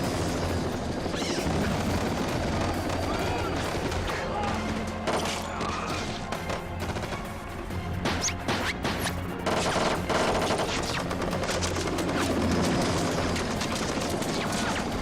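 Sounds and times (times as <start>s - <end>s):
rapid automatic gunfire: 0.0s - 5.4s, 6.2s - 7.4s, 9.4s - 15.0s
orchestral action music: 0.0s - 15.0s.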